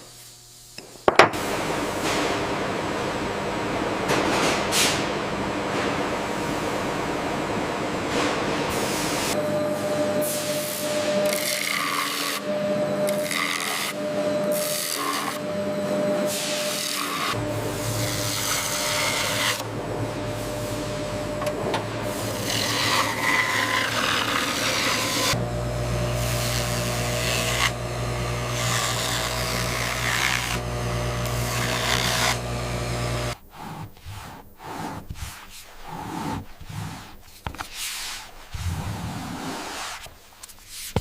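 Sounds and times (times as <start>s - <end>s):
workshop tool motor humming: 8.7s - 33.4s
rubbing and handling sounds: 33.4s - 41.0s.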